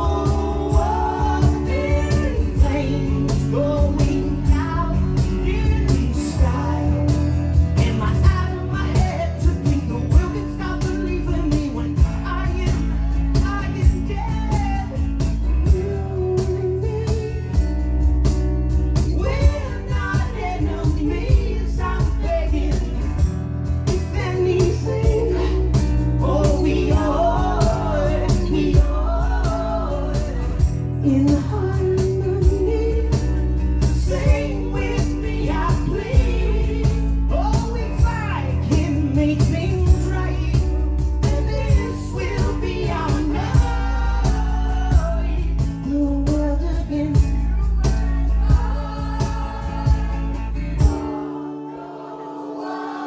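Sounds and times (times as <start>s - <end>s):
high-pitched lead vocal: 0.0s - 12.9s, 19.1s - 53.0s
steady drum beat: 0.0s - 51.2s
strummed acoustic guitars: 0.0s - 53.0s.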